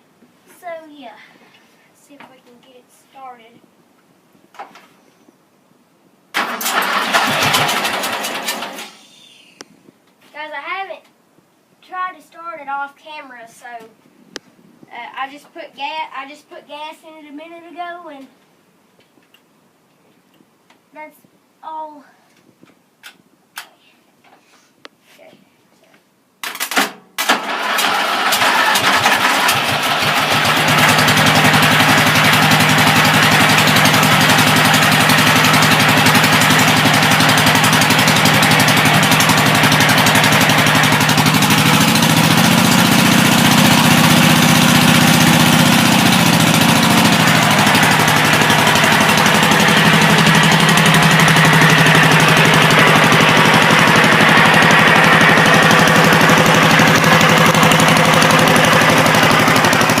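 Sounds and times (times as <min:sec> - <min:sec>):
small engine cranking and running: 0:06.4 - 0:09.0, 0:27.2 - 1:00.0.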